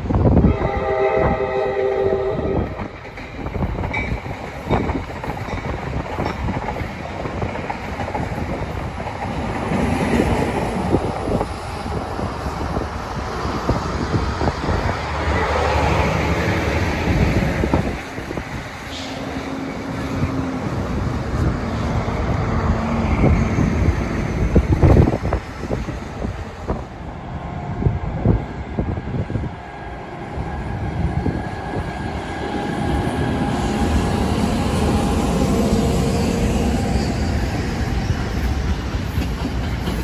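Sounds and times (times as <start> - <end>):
train passing rumble: 0.0 - 40.0
wheels clicking over rail joints: 38.1 - 40.0.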